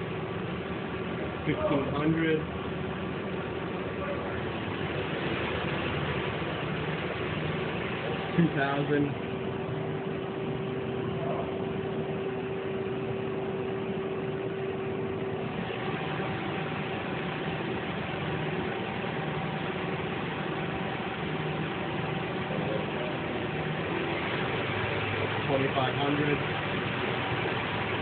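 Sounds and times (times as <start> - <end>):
lathe spindle whine: 0.0 - 28.0.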